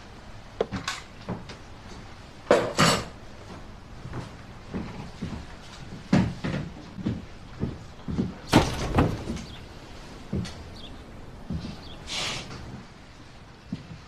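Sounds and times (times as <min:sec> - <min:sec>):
knocks and thumps: 0:06.0 - 0:11.9.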